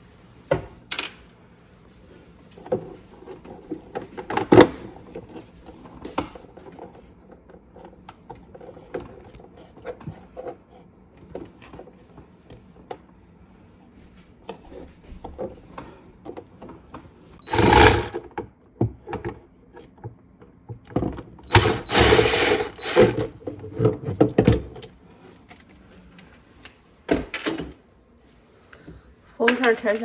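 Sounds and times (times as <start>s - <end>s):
small power drill bursts: 17.4s - 18.2s, 21.5s - 23.3s.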